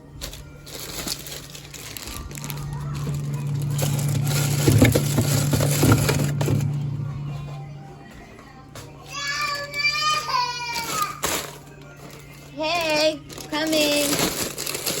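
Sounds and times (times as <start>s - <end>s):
plastic bags crinkling: 0.0s - 7.1s, 9.4s - 15.0s
steady low hum: 1.2s - 9.1s.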